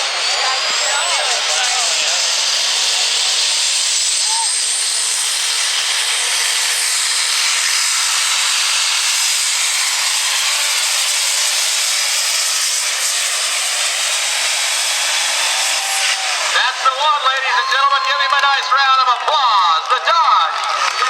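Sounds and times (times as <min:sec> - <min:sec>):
pulling truck loud hiss: 0:00.0 - 0:17.2.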